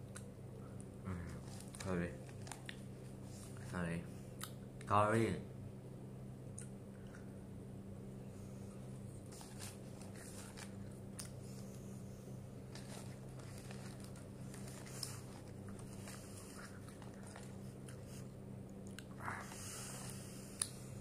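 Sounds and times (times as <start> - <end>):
steady low hum: 0.0 - 21.0
person chewing with crunches: 1.1 - 3.6, 9.2 - 11.8, 12.6 - 20.8.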